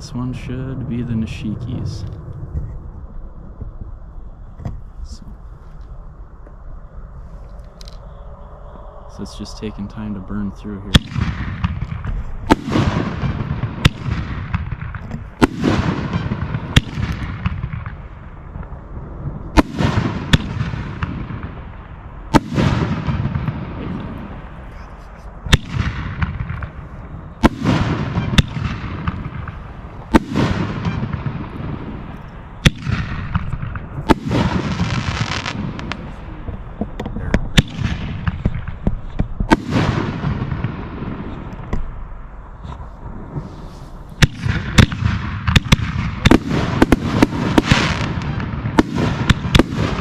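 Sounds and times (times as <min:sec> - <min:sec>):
fireworks exploding with echoes: 0:10.8 - 0:50.0.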